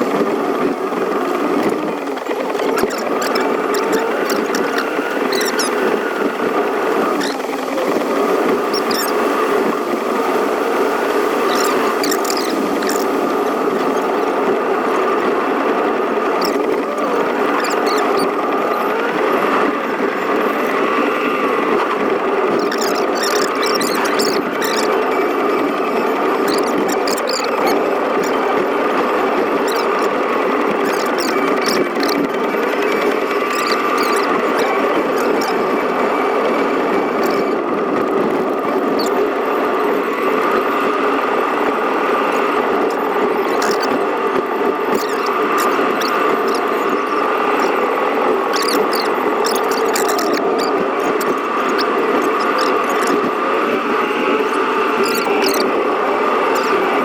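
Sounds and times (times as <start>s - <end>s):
car driving on wet road: 0.0s - 57.0s
high squeaks: 0.9s - 9.8s, 10.8s - 14.3s, 16.2s - 19.0s, 22.0s - 36.3s, 37.0s - 38.0s, 42.1s - 57.0s.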